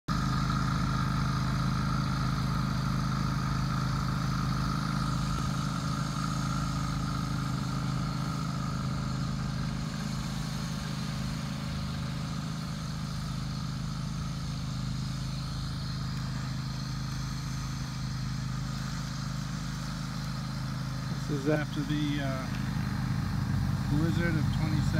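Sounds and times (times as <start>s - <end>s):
high whine: 0.1s - 24.9s
lawn tractor engine running: 0.1s - 24.9s.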